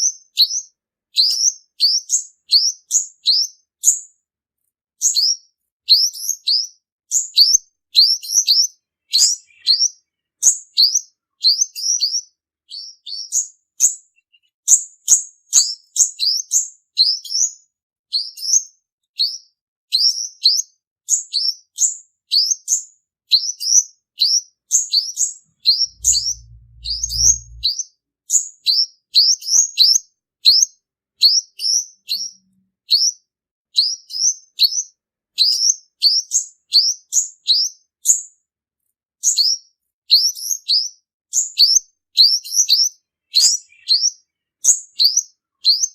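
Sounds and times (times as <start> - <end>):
low hum: 25.7 - 27.7
sunbird singing high thin notes: 25.7 - 27.7.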